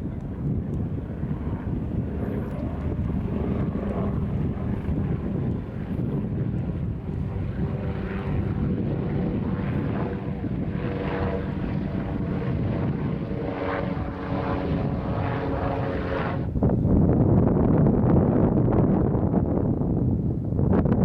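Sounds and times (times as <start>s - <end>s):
engine drone: 0.0s - 16.5s
wind buffeting microphone: 0.0s - 21.0s.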